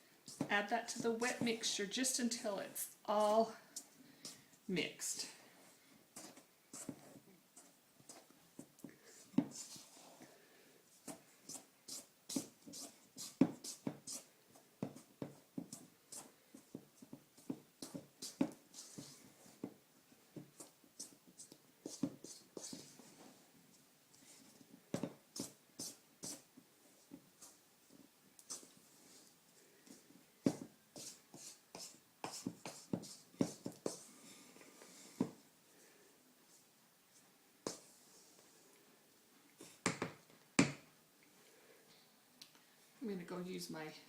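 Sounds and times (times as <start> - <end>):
dough stirred in a mixing bowl: 0.0 - 5.4, 29.9 - 34.1.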